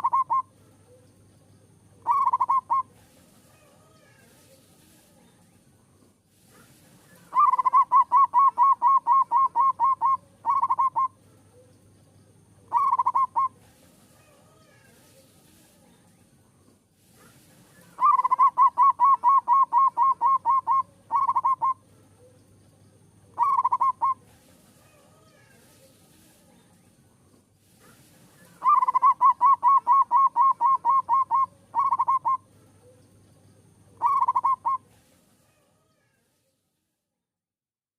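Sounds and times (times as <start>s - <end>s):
dove cooing: 0.0s - 1.0s, 2.0s - 3.0s, 7.2s - 11.6s, 12.7s - 13.6s, 17.8s - 22.3s, 23.3s - 25.0s, 28.4s - 32.5s, 34.0s - 34.9s.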